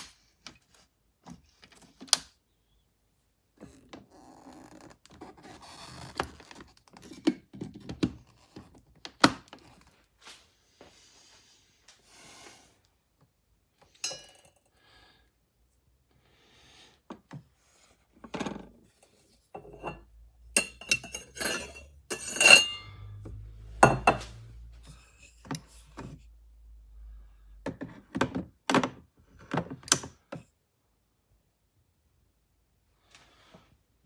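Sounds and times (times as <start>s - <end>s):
metal and crockery clinking: 14.0s - 14.5s, 20.6s - 23.2s
low steady hum: 19.6s - 27.7s.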